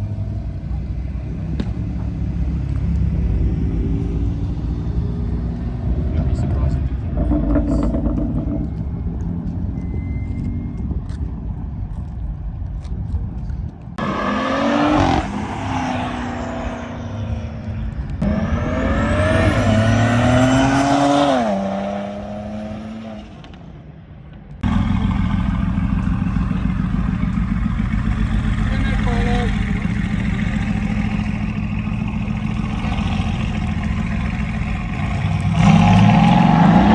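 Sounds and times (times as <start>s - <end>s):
low engine rumble: 0.0s - 14.0s, 23.3s - 36.9s
car engine accelerating hard: 14.0s - 23.3s, 24.6s - 36.9s.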